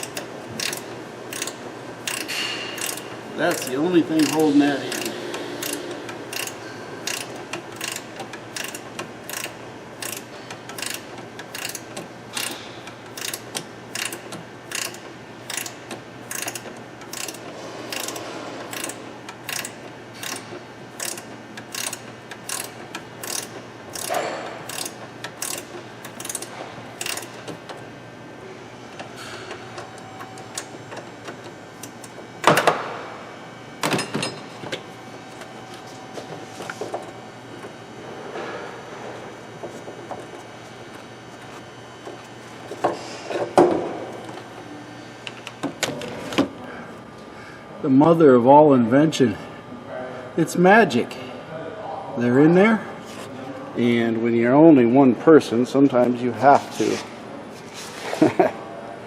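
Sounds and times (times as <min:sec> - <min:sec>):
ratcheting wrench clicking: 0:00.0 - 0:27.6.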